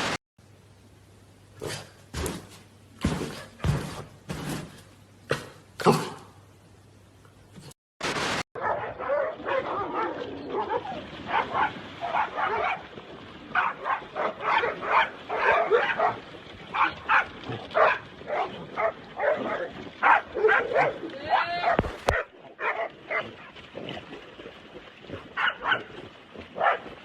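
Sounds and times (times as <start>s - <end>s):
dog barking and whining: 8.6s - 12.8s, 13.6s - 16.2s, 16.8s - 23.4s.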